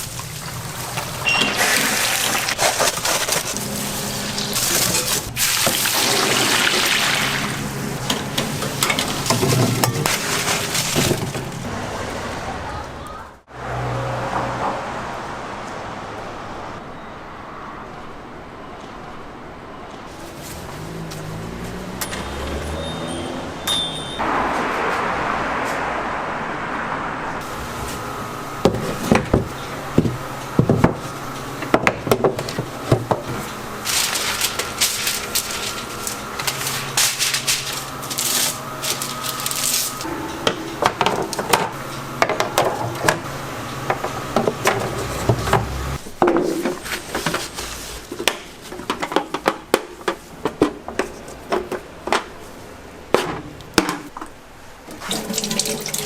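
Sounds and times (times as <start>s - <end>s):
utensils and containers clinking: 0.2s - 11.6s.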